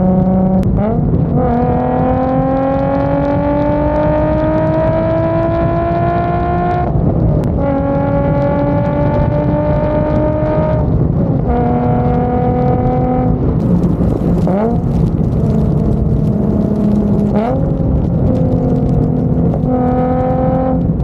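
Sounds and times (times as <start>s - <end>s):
engine revving: 0.0s - 6.9s, 7.6s - 21.0s
car engine cruising: 0.0s - 21.0s.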